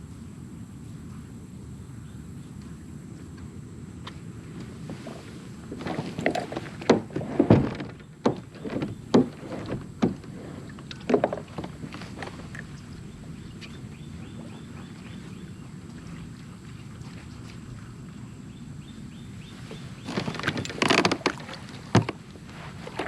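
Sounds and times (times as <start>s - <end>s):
steady low rumble: 0.0s - 9.1s, 9.7s - 20.1s
kayak knocks and splashes: 4.9s - 13.0s, 19.7s - 23.0s.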